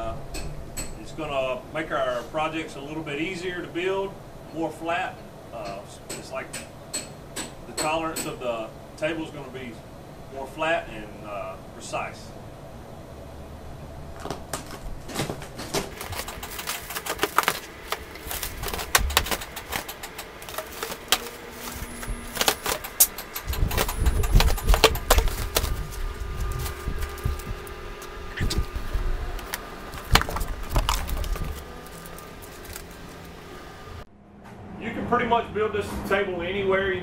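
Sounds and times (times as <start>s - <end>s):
metal parts clicking and rattling: 15.7s - 33.4s
plastic wrap crinkling and tearing: 15.8s - 33.5s.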